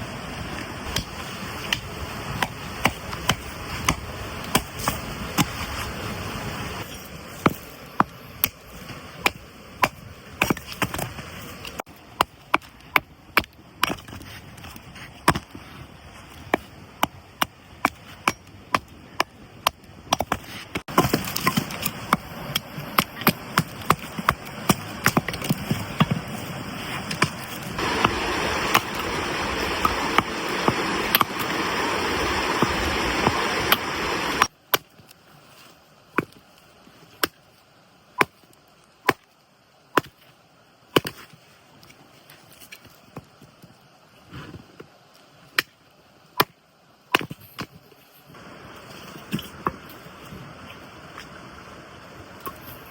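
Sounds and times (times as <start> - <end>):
hissing rush: 26.2 - 34.4.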